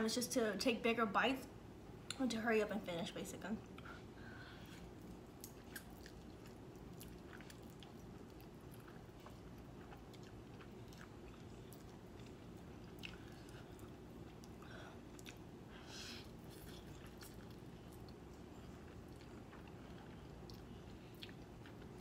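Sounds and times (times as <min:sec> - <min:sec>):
low room hum: 0:00.0 - 0:22.0
person chewing: 0:04.6 - 0:22.0.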